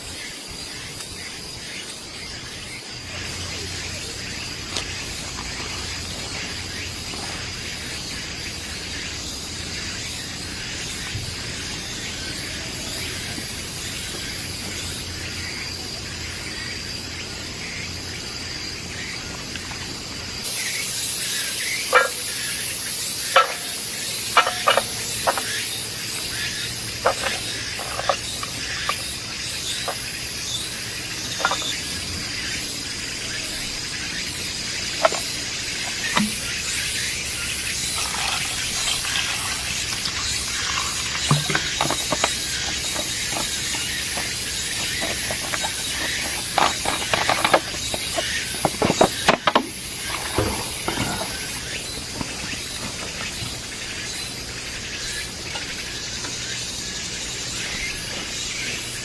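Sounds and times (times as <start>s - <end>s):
insects droning: 0.0s - 59.0s
sharp clicks and knocks: 31.3s - 31.8s, 35.0s - 36.6s, 37.8s - 51.4s.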